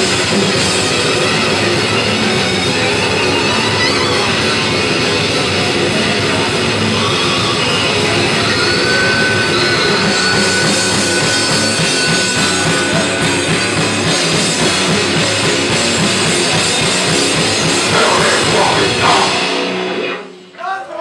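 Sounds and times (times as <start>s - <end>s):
death metal band playing live: 0.0s - 20.6s
fast dense drumming: 9.9s - 19.7s.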